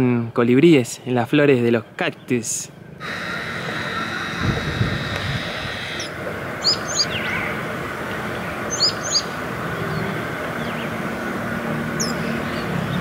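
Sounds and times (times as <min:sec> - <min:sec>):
small bird chirping: 0:03.0 - 0:07.6, 0:08.7 - 0:09.3.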